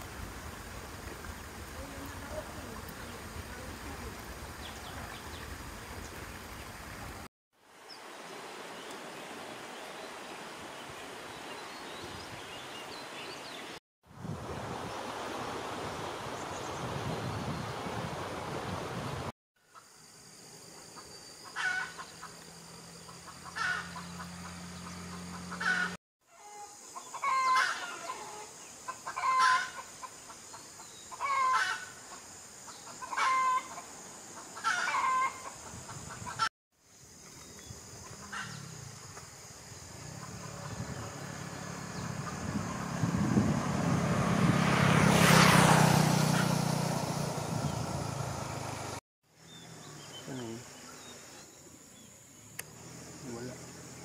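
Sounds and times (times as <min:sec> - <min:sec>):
vehicle approaching: 0:00.0 - 0:07.3, 0:22.1 - 0:26.0, 0:38.0 - 0:50.6, 0:52.6 - 0:54.0.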